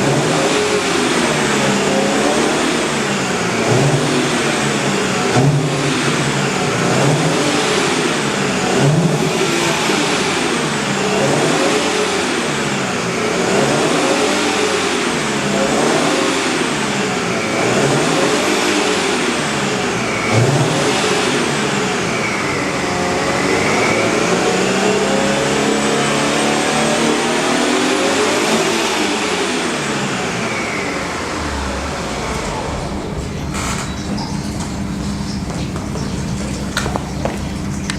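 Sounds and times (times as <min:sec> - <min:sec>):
car engine revving: 0:00.0 - 0:37.9.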